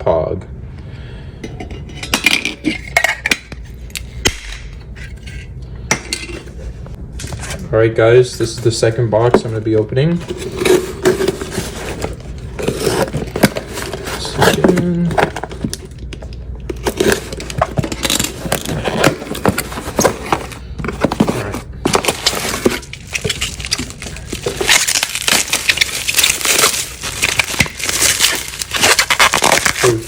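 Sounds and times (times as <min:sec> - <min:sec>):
cardboard and tape ripping: 0:10.2 - 0:15.8, 0:16.8 - 0:30.0
packing material crinkling: 0:16.8 - 0:30.0.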